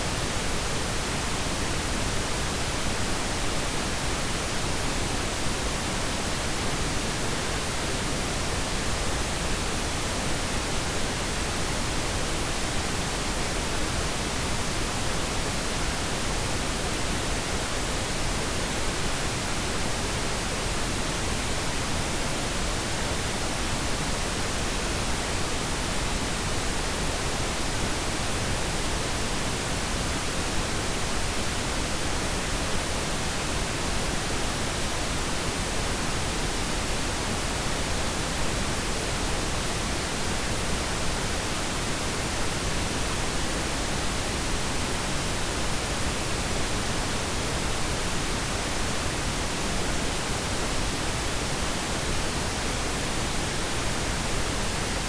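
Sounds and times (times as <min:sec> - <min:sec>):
steady pink noise hiss: 0:00.0 - 0:55.0.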